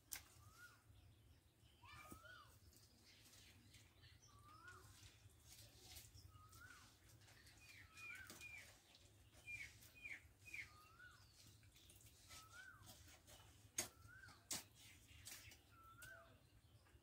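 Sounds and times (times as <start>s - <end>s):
faint bird whistling: 0.4s - 0.9s, 9.4s - 11.3s, 12.2s - 12.9s, 13.9s - 14.5s, 15.7s - 16.4s
high bird chirps: 5.9s - 16.8s.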